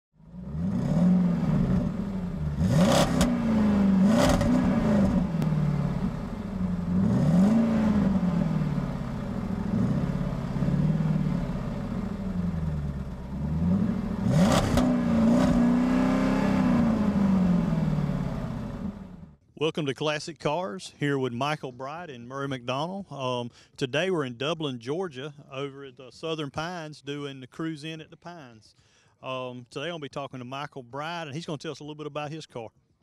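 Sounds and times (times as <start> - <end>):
car engines revving: 0.2 - 19.4.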